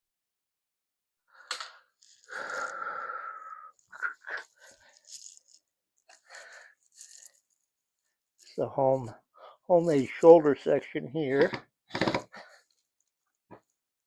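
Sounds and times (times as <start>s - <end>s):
small clicks and rattles: 3.8s - 8.6s.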